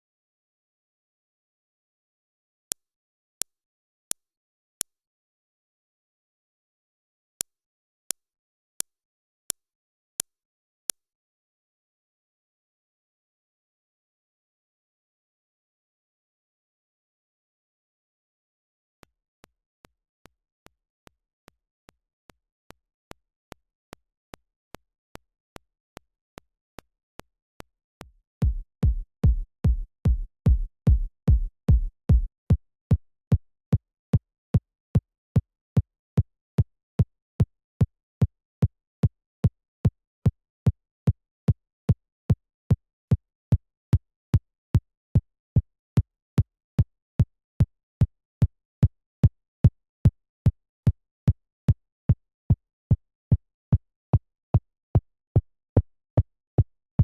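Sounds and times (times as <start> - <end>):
electronic kick drum: 28.1 - 32.3.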